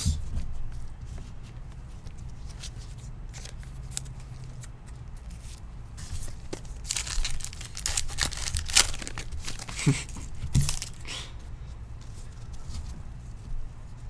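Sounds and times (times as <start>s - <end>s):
foil wrapper crinkling: 6.0s - 11.2s.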